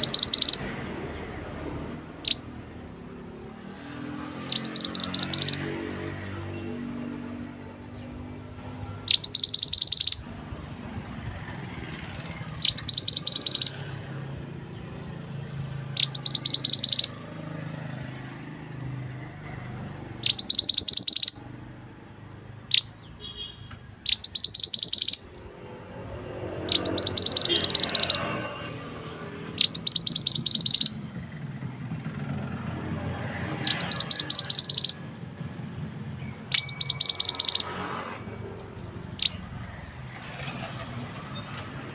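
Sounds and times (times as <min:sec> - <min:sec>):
songbird high rapid trills: 0:00.0 - 0:00.7, 0:04.4 - 0:06.2, 0:09.0 - 0:10.3, 0:12.6 - 0:13.8, 0:16.0 - 0:17.2, 0:20.2 - 0:21.4, 0:26.6 - 0:28.5, 0:29.6 - 0:31.0, 0:33.6 - 0:35.0, 0:36.6 - 0:38.6.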